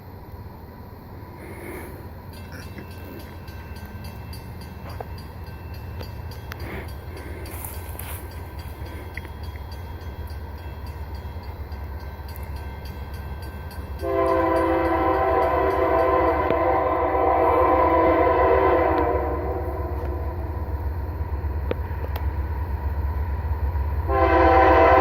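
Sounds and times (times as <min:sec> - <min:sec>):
diesel locomotive rumble: 0:00.0 - 0:25.0
locomotive air horn blast: 0:14.0 - 0:20.6, 0:24.1 - 0:25.0.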